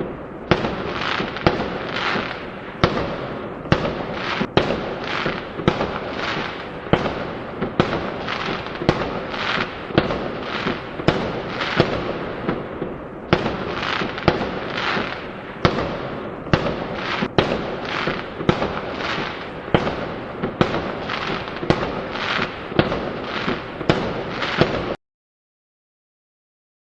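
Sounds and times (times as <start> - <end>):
fireworks bangs: 0.0 - 25.0
fireworks crackle: 0.0 - 25.0.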